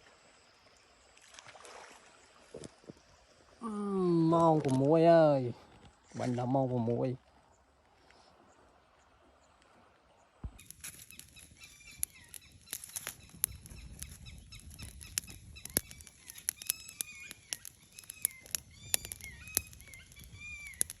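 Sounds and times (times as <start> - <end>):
birds chirping: 10.6 - 21.0
sharp clicks: 10.6 - 21.0.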